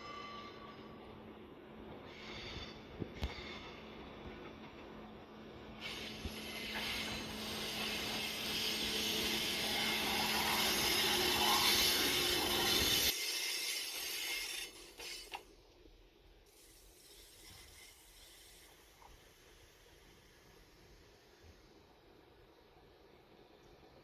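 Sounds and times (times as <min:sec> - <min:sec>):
low train rumble: 0:00.0 - 0:13.2
wheels rushing on rails: 0:01.8 - 0:15.4.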